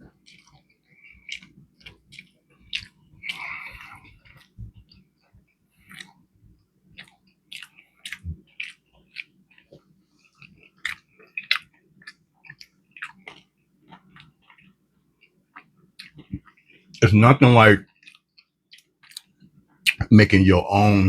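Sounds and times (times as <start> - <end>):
chewing crunchy food: 0.0 - 20.0
wet mouth sounds: 0.2 - 5.1, 5.8 - 6.2, 7.0 - 9.8.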